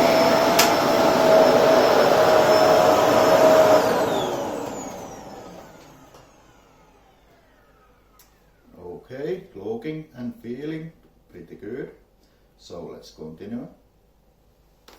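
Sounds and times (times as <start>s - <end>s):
vacuum motor winding down: 0.0s - 8.7s
vacuum cleaner running: 0.0s - 8.8s.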